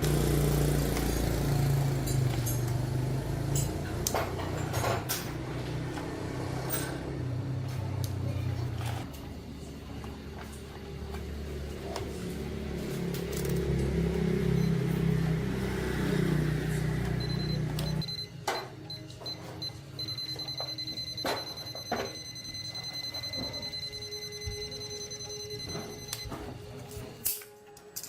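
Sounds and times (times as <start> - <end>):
high-pitched beeping tone: 17.2 - 26.3.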